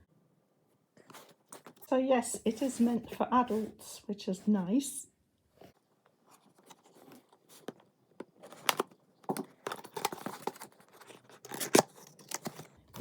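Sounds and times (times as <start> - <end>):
packaging rustling and crinkling: 5.6 - 13.0.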